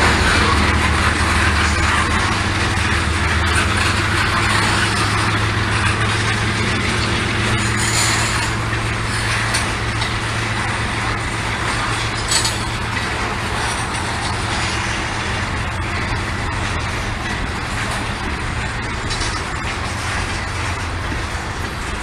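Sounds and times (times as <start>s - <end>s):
diesel locomotives droning: 0.0s - 22.0s
train rumble: 0.0s - 22.0s.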